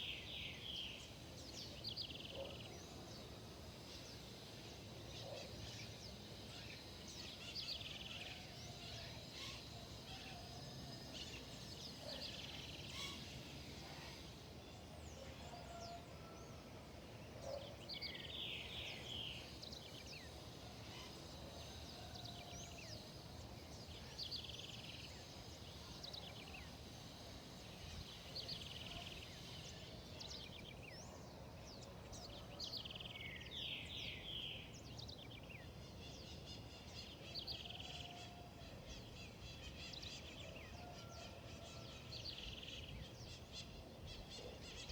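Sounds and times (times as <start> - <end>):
wild birds calling: 3.8 - 16.6.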